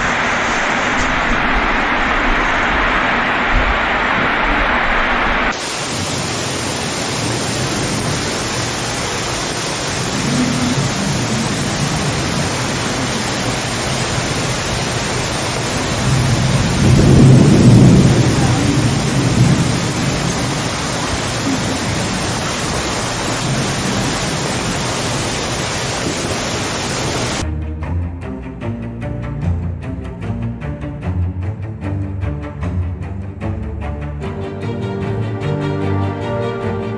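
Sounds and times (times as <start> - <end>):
heavy rain: 0.0 - 27.4, 34.2 - 36.9
rolling thunder: 0.0 - 27.4
music with low bowed strings: 27.4 - 36.9.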